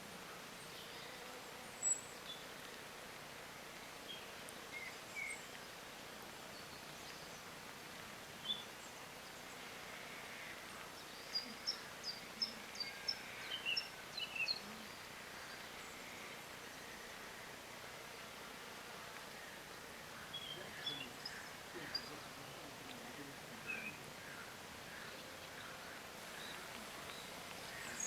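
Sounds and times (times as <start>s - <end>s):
outdoor background hiss: 0.0s - 28.0s
small birds chirping: 8.4s - 17.6s, 19.3s - 28.0s.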